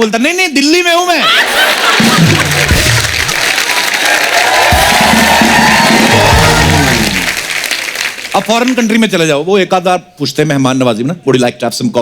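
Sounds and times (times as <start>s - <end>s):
studio audience applauding: 1.2s - 9.1s
house band music: 1.5s - 7.6s.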